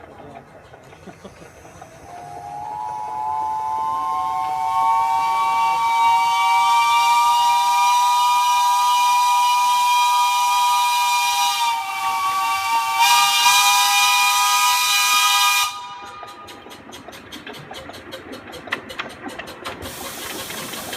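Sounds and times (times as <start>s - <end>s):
hissing steam: 1.0s - 16.6s, 19.2s - 20.9s
steam locomotive chime whistle: 2.1s - 16.4s.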